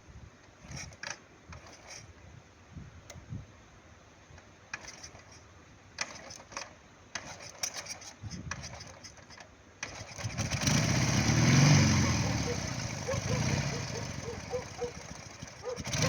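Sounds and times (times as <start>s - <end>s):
motorcycle engine running: 9.8s - 16.0s.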